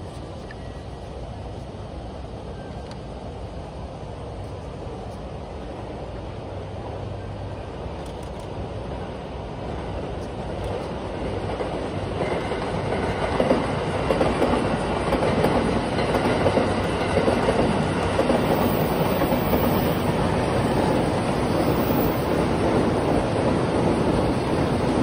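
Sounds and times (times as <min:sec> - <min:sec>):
trains passing: 0:00.0 - 0:25.0.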